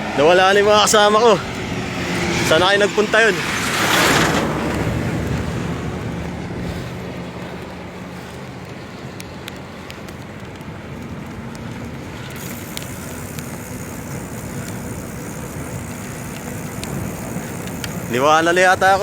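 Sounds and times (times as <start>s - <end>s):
wind and road noise: 0.0s - 19.0s
sharp clicks: 12.2s - 19.0s.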